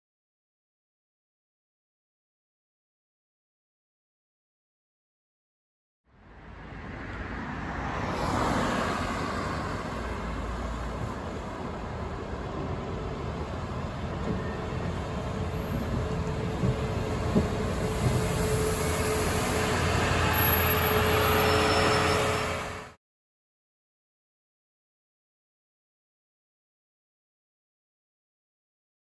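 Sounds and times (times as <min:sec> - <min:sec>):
bus engine and road noise: 0:06.1 - 0:23.0.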